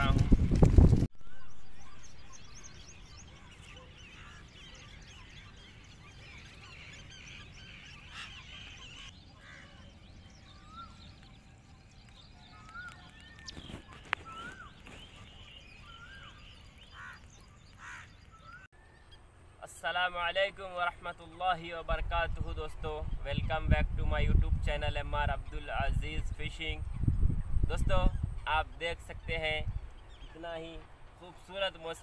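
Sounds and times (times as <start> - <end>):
bird rising and falling call: 0.0 - 19.3
small birds chirping: 0.0 - 32.0.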